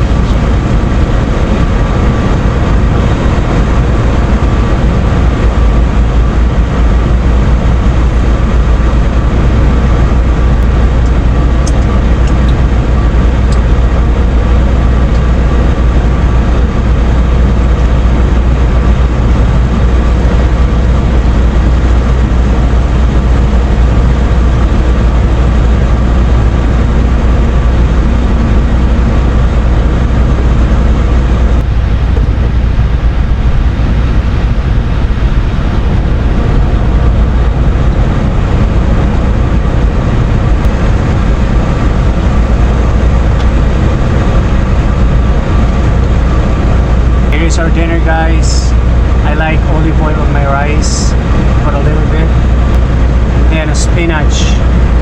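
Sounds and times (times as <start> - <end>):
heavy engine idling: 0.0 - 55.0.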